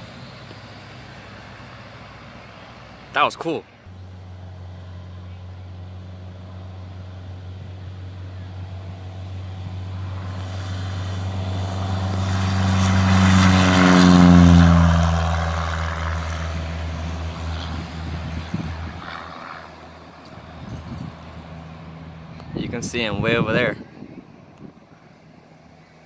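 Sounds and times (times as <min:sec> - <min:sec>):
propeller airplane flying past: 0:00.0 - 0:26.0.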